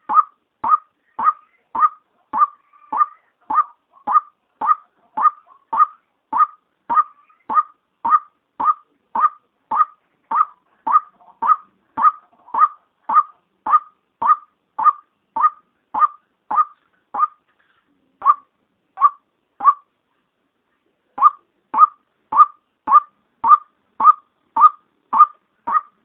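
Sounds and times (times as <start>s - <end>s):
waterhen calling short notes: 0.0s - 17.4s, 18.2s - 19.9s.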